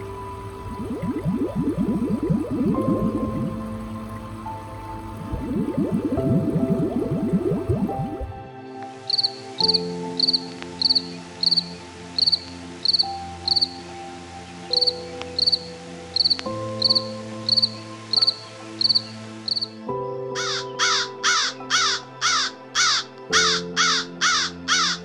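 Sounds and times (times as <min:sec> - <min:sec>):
held background chords: 0:00.0 - 0:09.0.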